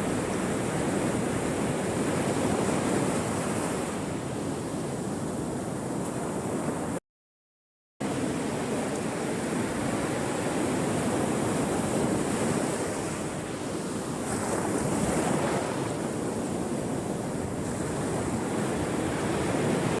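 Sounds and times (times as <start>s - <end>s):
ocean waves washing onto shore: 0.0s - 7.0s, 8.0s - 20.0s
wind noise on microphone: 0.0s - 7.0s, 8.0s - 20.0s.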